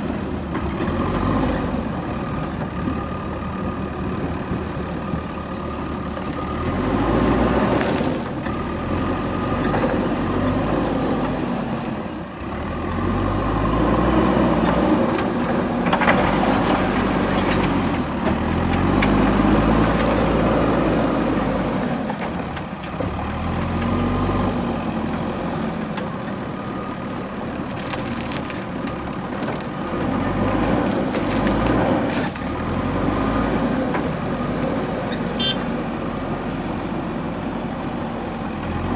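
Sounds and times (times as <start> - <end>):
backhoe diesel engine working: 0.0 - 38.9.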